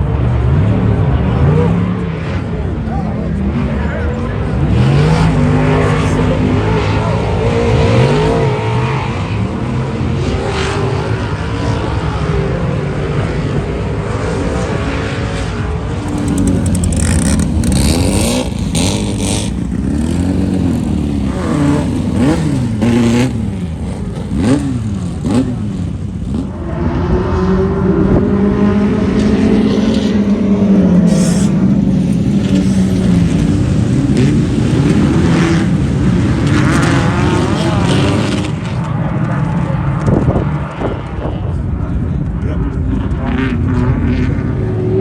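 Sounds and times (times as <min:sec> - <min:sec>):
race vehicle engines revving: 0:00.0 - 0:45.0.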